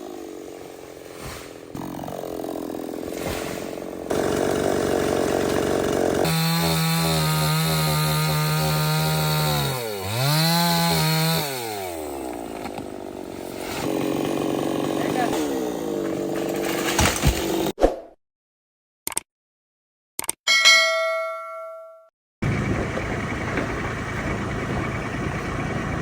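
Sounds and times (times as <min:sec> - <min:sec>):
chainsaw cutting wood: 0:00.0 - 0:17.8.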